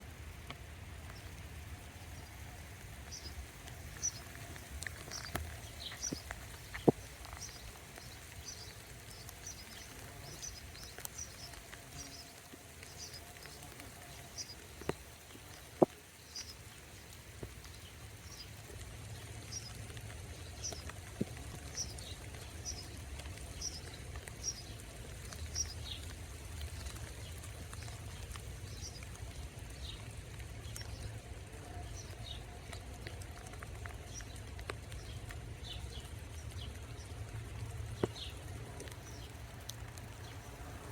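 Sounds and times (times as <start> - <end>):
rain: 0.0 - 40.9
small bird chirping: 1.9 - 26.1.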